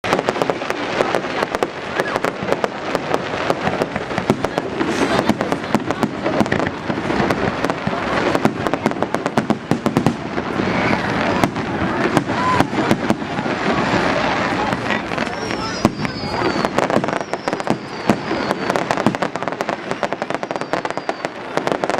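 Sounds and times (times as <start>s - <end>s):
fireworks crackling bangs: 0.0s - 21.9s.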